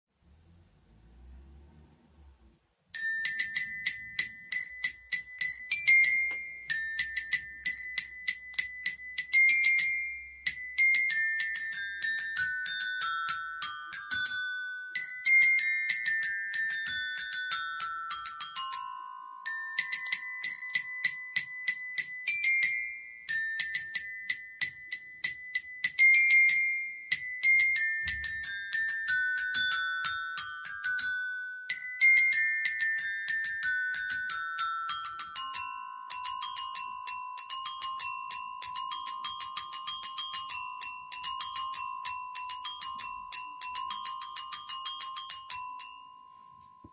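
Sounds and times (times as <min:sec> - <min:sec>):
metallophone melody: 0:02.9 - 0:46.9.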